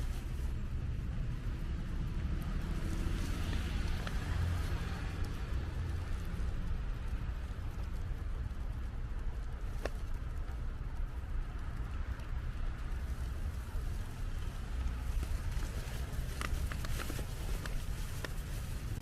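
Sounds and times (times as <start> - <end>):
city traffic rumble: 0.0 - 19.0.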